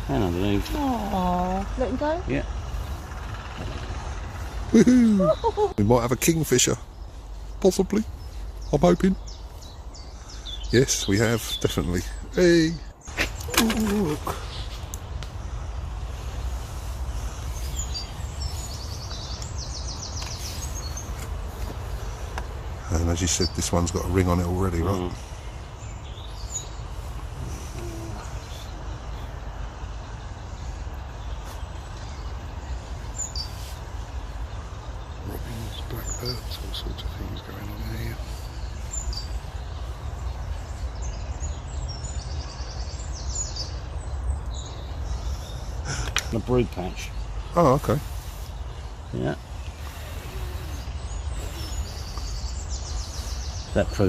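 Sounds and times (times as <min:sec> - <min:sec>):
low rumble: 0:00.0 - 0:10.4
songbird trilling: 0:00.0 - 0:54.0
steady low rumble: 0:00.0 - 0:54.0.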